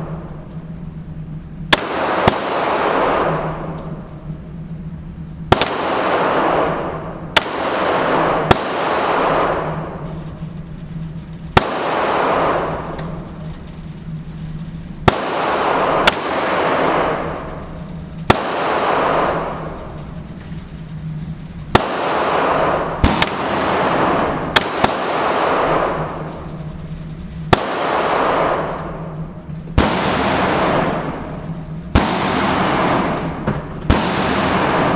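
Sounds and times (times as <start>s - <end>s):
handgun shots echoing: 5.5s - 10.0s, 21.8s - 26.8s.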